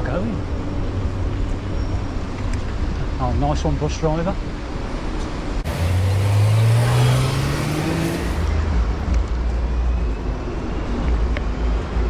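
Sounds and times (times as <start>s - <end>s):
low rumble of street traffic: 0.0s - 12.0s
vehicle engine accelerating: 5.6s - 8.8s.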